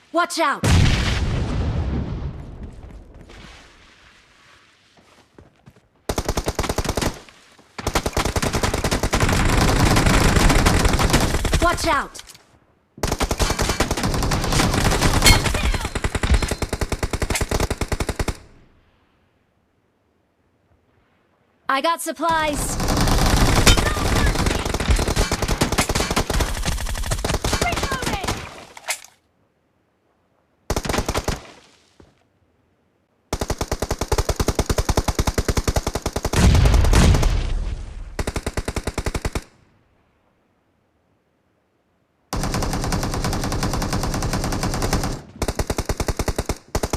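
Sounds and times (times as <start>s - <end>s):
rapid automatic gunfire: 6.1s - 7.2s, 7.8s - 11.7s, 13.0s - 18.4s, 22.5s - 28.5s, 30.7s - 31.4s, 33.3s - 37.3s, 38.2s - 39.4s, 42.4s - 46.9s
video game automatic gunfire: 7.8s - 11.7s, 22.4s - 28.4s.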